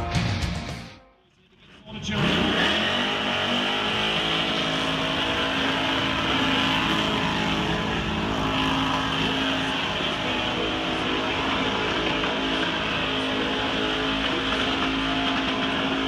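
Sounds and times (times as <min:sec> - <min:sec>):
car engine at high revs: 0:01.9 - 0:16.0
spinning tyres hissing: 0:02.3 - 0:16.0.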